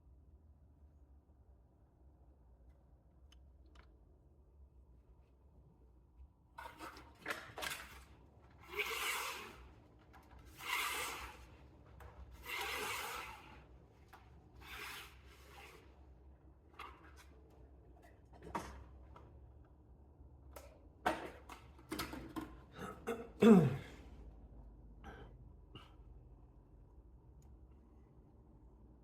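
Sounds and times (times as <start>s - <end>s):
string rubbing through racquet frame: 8.6s - 9.8s, 10.5s - 11.7s, 12.3s - 13.7s, 14.6s - 16.0s.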